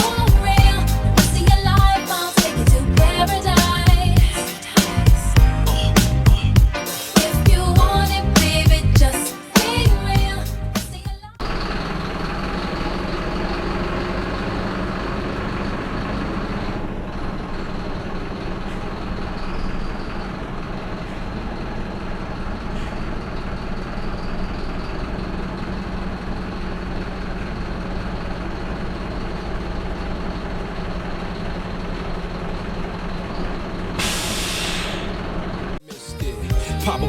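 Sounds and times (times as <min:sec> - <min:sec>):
truck diesel engine droning: 0:00.0 - 0:02.0, 0:02.6 - 0:04.3, 0:05.0 - 0:06.6, 0:10.0 - 0:35.8
sharp hiss of air: 0:06.8 - 0:07.4, 0:34.0 - 0:35.2.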